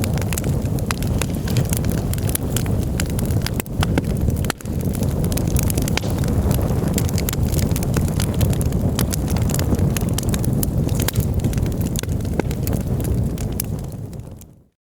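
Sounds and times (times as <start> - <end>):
campfire crackling and popping: 0.0 - 14.7
low rumble of flames: 0.0 - 14.7.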